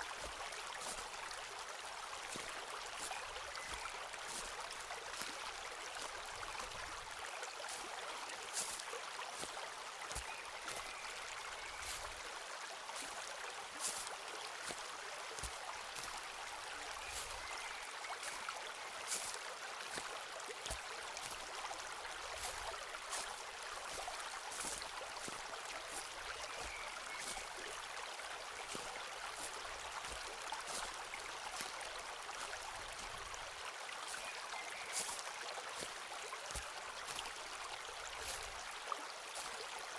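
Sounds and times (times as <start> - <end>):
stream rushing: 0.0 - 39.9
footsteps on forest floor: 0.2 - 1.1, 2.2 - 5.4, 8.5 - 11.0, 11.7 - 12.2, 12.9 - 18.4, 19.0 - 27.6, 28.6 - 31.8, 33.9 - 37.4, 38.1 - 38.6, 39.4 - 39.6
leaves and twigs crackling: 8.5 - 12.2, 13.8 - 14.8, 15.4 - 18.4, 19.1 - 20.1, 22.4 - 27.6, 28.6 - 31.8, 34.1 - 37.4.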